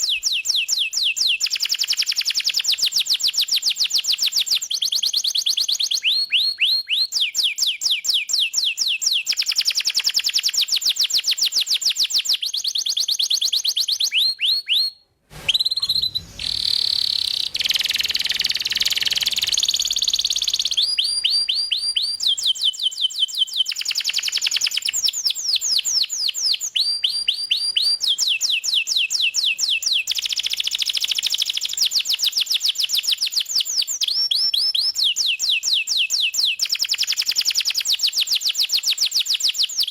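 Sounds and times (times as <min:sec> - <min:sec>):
canary singing rapid trills: 0:15.6 - 0:25.6.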